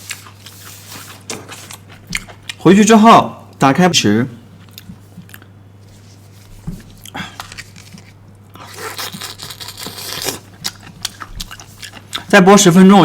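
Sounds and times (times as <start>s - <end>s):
bamboo shoots crunching: 7.4s - 12.0s.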